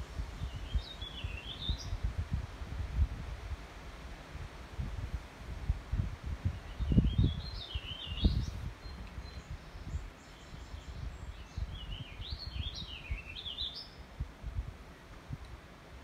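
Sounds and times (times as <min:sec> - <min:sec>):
wind rumble on microphone: 0:00.0 - 0:16.0
songbird warbling: 0:06.6 - 0:14.0.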